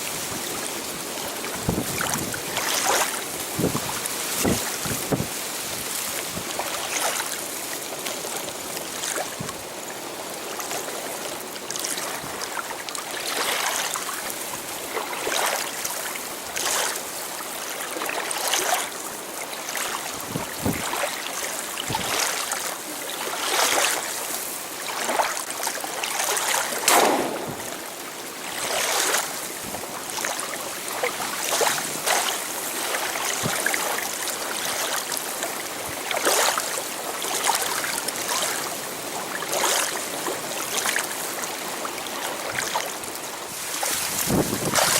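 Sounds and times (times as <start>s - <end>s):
water sloshing and splashing: 1.7s - 7.4s, 19.8s - 35.0s, 43.5s - 44.9s.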